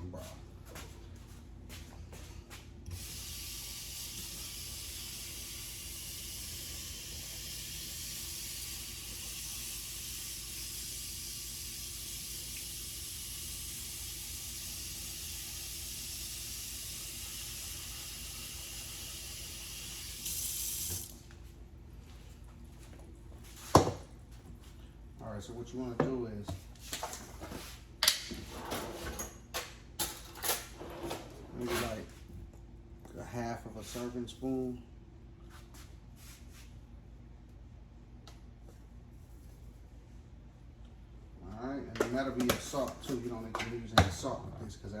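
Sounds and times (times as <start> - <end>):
tap water running into pot: 3.5 - 21.2.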